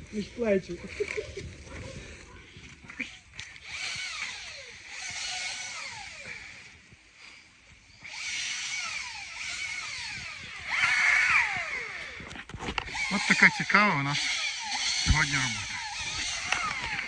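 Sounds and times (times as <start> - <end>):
power tool whining: 0.0 - 17.0.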